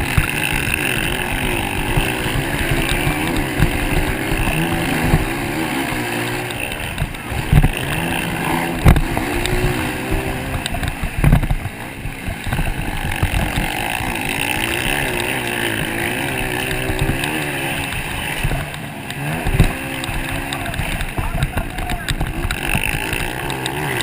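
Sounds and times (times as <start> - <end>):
short thumps: 0.0 - 14.2, 19.4 - 23.6
motocross motorcycle engines racing: 0.0 - 24.0.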